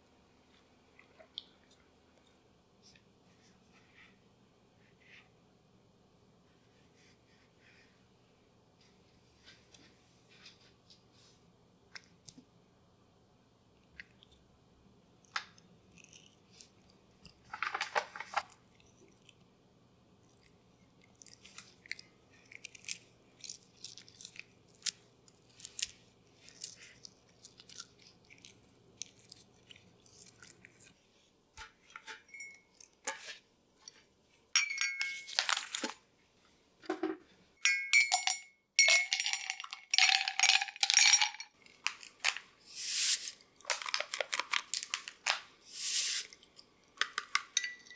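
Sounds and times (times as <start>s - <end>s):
objects being handled clicking: 17.5s - 18.6s, 43.6s - 45.4s, 47.0s - 47.9s
rustling or scraping bursts: 42.7s - 43.4s, 45.7s - 46.3s.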